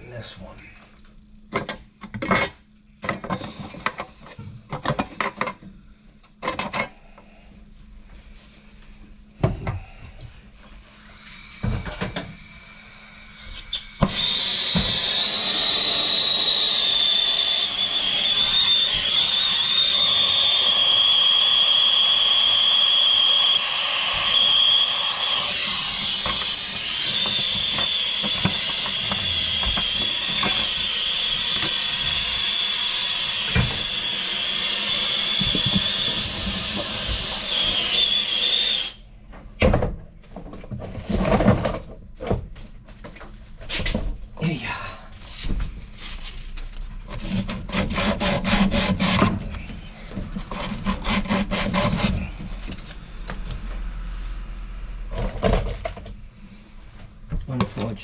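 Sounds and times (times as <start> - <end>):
torch burning with hiss and whistle: 6.8 - 39.1, 50.8 - 58.0.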